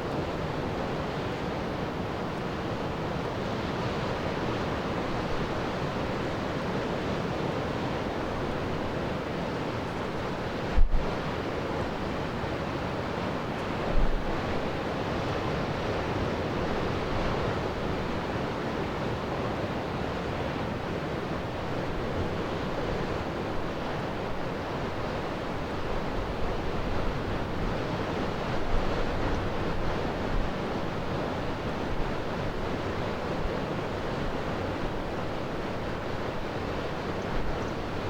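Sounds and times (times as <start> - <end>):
wind on microphone: 10.6 - 11.4.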